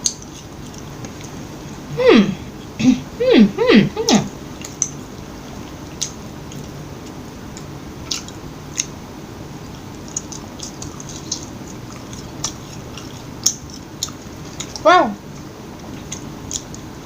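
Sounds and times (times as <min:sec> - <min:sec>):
close-up chewing food: 0:04.5 - 0:17.0.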